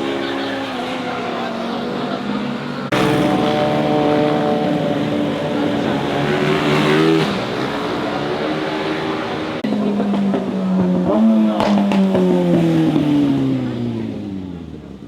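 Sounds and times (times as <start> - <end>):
motorcycle engines accelerating: 0.0 - 15.0.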